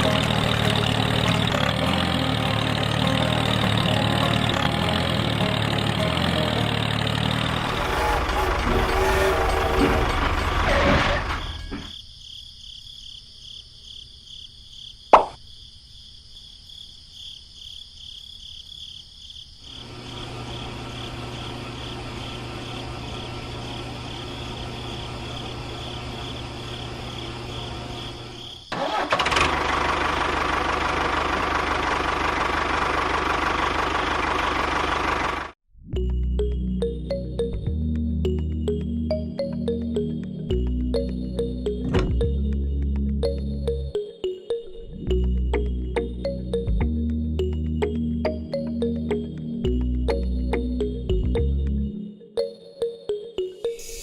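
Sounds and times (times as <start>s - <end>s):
machine running noisily: 6.7s - 11.8s, 19.8s - 28.4s
low hum: 7.4s - 11.9s.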